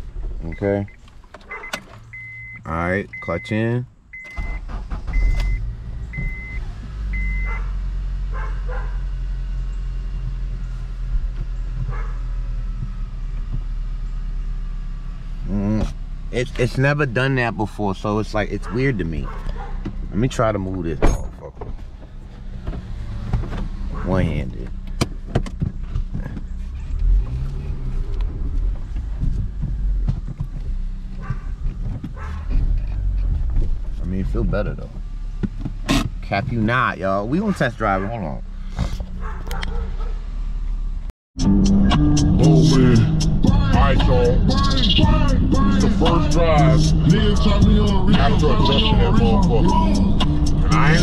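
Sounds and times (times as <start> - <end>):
car engine idling: 0.0 - 51.0
dashboard warning chime: 0.5 - 3.6.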